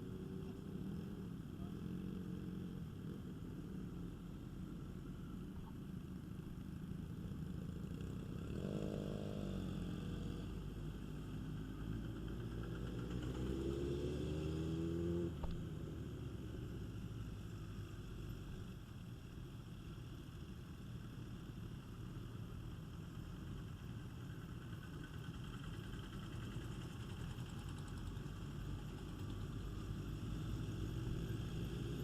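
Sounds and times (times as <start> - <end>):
motorcycle engines rumbling: 0.0 - 32.0
motorcycle engine accelerating: 7.5 - 17.4.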